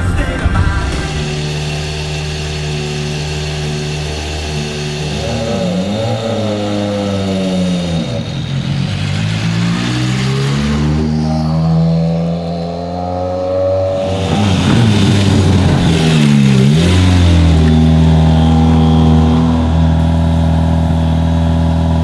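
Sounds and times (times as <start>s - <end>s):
rally car engine revving high: 0.0s - 22.0s.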